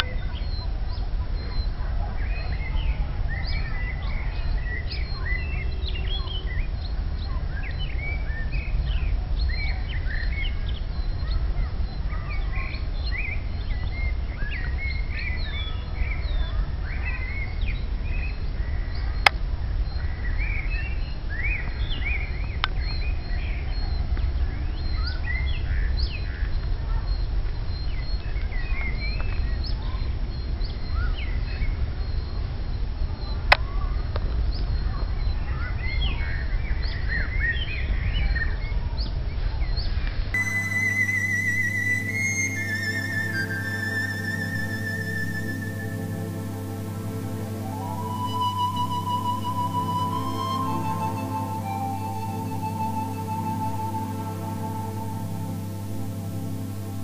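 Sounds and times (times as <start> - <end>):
songbirds chirping and singing: 40.4 - 57.0.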